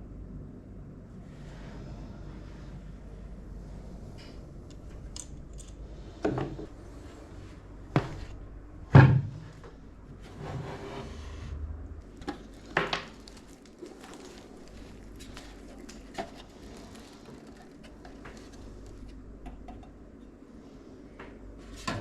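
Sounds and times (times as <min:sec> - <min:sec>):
rubbing or rustling: 0:12.2 - 0:19.2.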